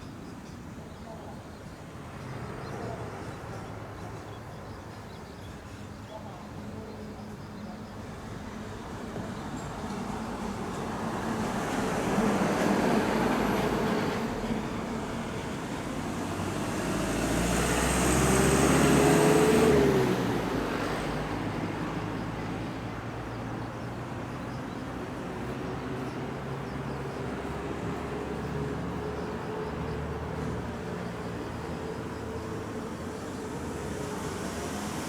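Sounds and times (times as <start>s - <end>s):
passing traffic: 8.0s - 35.0s
vehicle passing by: 10.4s - 35.0s.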